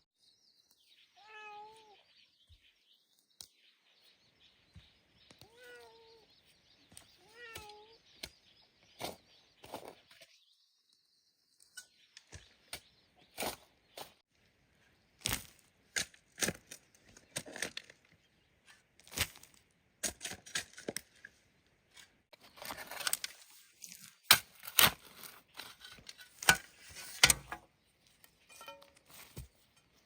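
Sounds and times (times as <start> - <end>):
hand tools knocking and scraping: 25.6 - 30.0.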